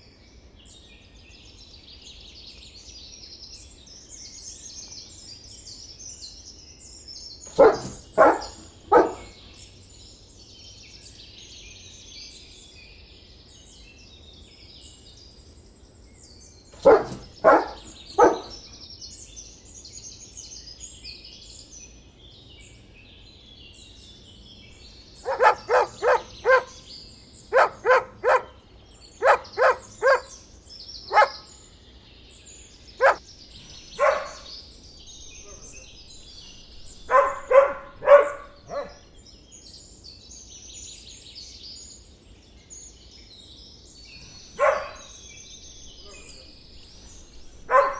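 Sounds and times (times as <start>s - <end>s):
dog barking: 7.5s - 9.5s, 16.8s - 18.8s, 25.2s - 26.9s, 27.5s - 30.4s, 31.1s - 31.5s, 33.0s - 39.0s, 44.2s - 47.9s
birds chirping: 7.5s - 9.6s, 16.8s - 18.8s, 24.4s - 31.7s, 32.8s - 39.2s, 44.0s - 47.9s.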